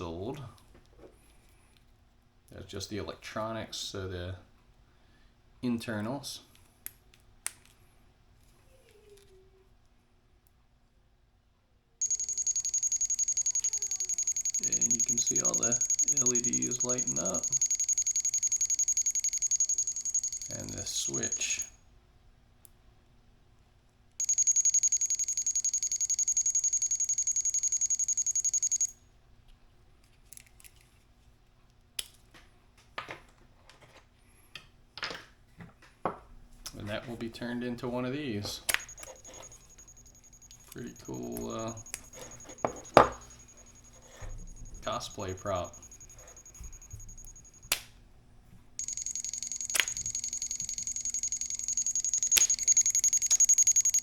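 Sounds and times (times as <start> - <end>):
fast high-pitched pulsing beep: 12.0 - 21.7, 24.2 - 28.9, 38.7 - 47.6, 48.8 - 54.0.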